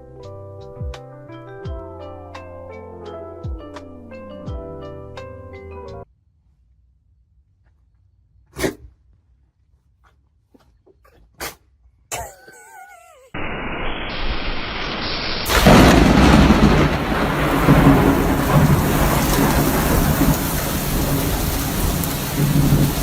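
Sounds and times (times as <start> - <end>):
wavering high-pitched cry: 12.2 - 13.4
heavy rain: 13.4 - 23.0
thunder-like rumble: 13.9 - 23.0.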